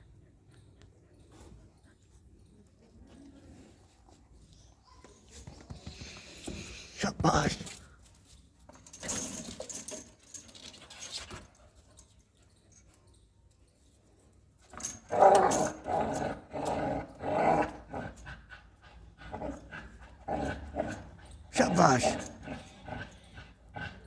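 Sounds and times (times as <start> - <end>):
dog growling: 19.2 - 24.0.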